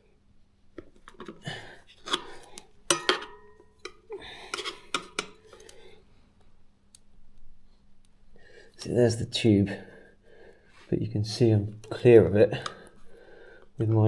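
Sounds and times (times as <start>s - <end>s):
metallic ring: 2.9s - 3.9s.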